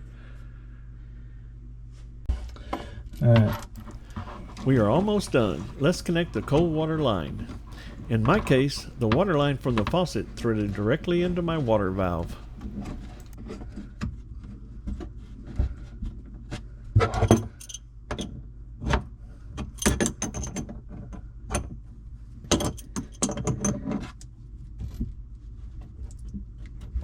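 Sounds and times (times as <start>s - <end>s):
steady low hum: 3.8s - 13.4s.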